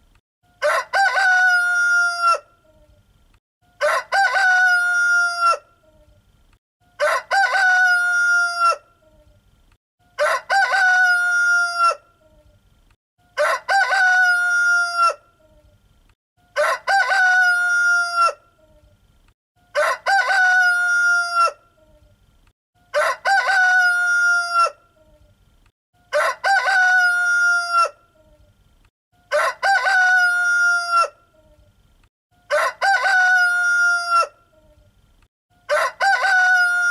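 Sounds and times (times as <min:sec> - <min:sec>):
rooster crowing: 0:00.6 - 0:02.5, 0:03.7 - 0:05.7, 0:07.0 - 0:08.9, 0:10.2 - 0:12.0, 0:13.4 - 0:15.2, 0:16.5 - 0:18.4, 0:19.7 - 0:21.6, 0:22.9 - 0:24.8, 0:26.1 - 0:28.0, 0:29.2 - 0:31.2, 0:32.4 - 0:34.4, 0:35.6 - 0:36.9.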